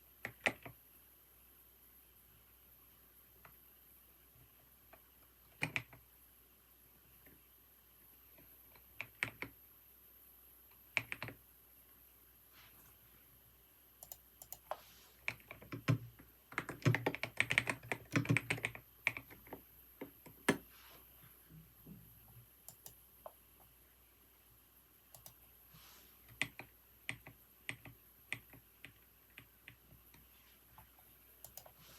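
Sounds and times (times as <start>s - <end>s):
typing on a computer keyboard: 0.2s - 0.8s, 5.5s - 6.0s, 8.4s - 9.6s, 10.9s - 11.4s, 14.0s - 20.6s, 22.7s - 23.4s, 25.1s - 25.4s, 26.3s - 29.8s, 31.4s - 31.8s.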